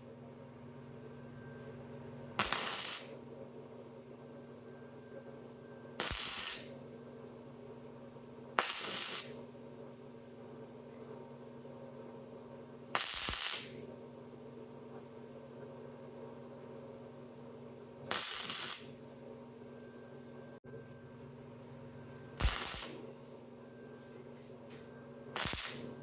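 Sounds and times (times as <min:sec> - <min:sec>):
welder hum: 0:01.0 - 0:11.1, 0:12.5 - 0:26.0
welding arc crackle: 0:02.4 - 0:03.2, 0:06.0 - 0:06.8, 0:08.6 - 0:09.4, 0:13.0 - 0:13.8, 0:18.1 - 0:19.0, 0:22.4 - 0:23.0, 0:25.4 - 0:26.0.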